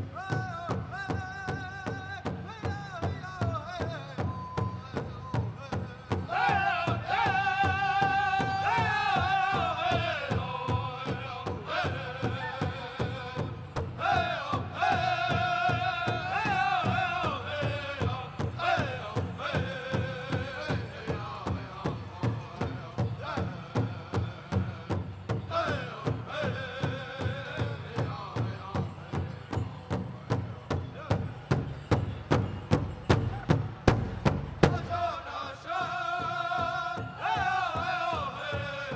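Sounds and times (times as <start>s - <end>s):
group singing high falling phrases: 5.7s - 29.6s, 33.1s - 38.9s
bass drum beat: 25.5s - 38.9s.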